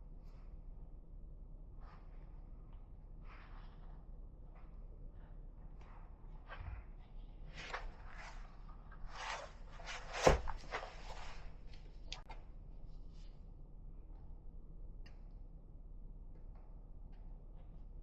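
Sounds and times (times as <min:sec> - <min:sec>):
handling rustles and scrapes: 0:03.2 - 0:12.3.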